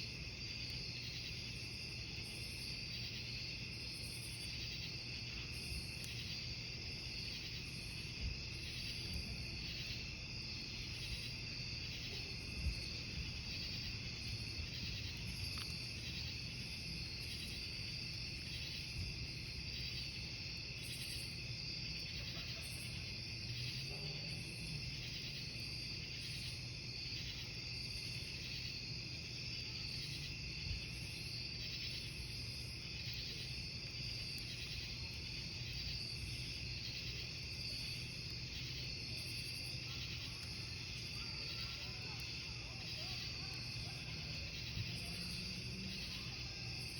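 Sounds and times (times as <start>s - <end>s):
campfire burning: 0.0s - 46.9s
crickets chirping: 0.0s - 46.9s
fire popping: 3.7s - 22.9s, 31.9s - 46.2s.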